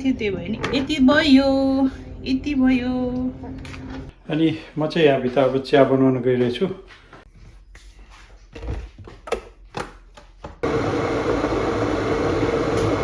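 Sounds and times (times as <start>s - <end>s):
kitchen appliance whirring hum: 10.6s - 13.0s.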